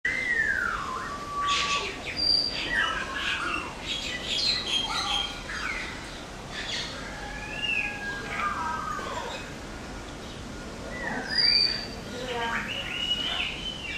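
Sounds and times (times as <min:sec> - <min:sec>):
parrots squawking and whistling: 0:00.1 - 0:03.7.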